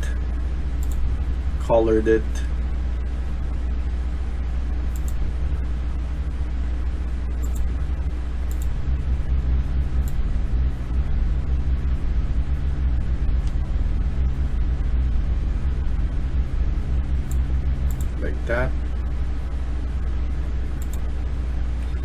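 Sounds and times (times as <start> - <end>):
low rumble background noise: 0.0 - 22.0
faint computer mouse clicks: 20.8 - 21.0.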